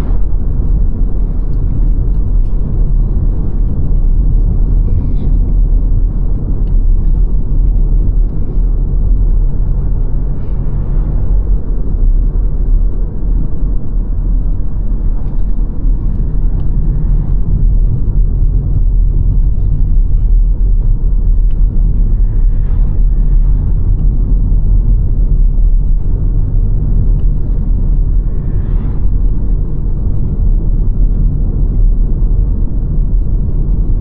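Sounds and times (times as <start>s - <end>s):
car engine and tyre rumble: 0.0s - 34.0s.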